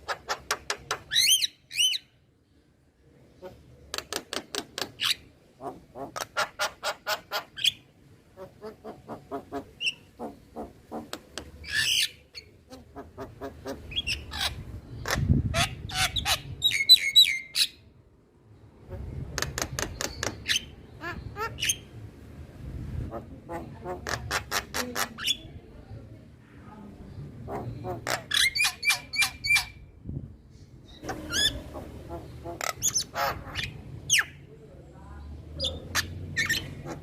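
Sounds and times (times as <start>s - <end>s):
myna chattering and squawking: 0.0s - 2.0s, 3.4s - 7.8s, 8.4s - 17.7s, 18.9s - 21.9s, 23.0s - 25.6s, 27.4s - 29.8s, 31.0s - 34.4s, 35.6s - 37.0s.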